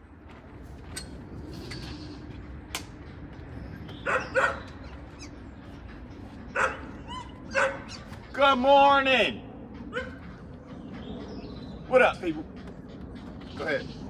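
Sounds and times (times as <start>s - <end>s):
dog barking: 4.0s - 4.7s, 6.6s - 8.0s, 9.9s - 10.2s.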